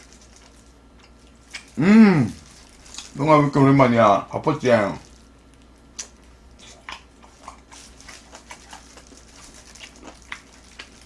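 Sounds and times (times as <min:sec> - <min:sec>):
chewing and lip smacks: 0:00.2 - 0:01.8, 0:05.5 - 0:11.0.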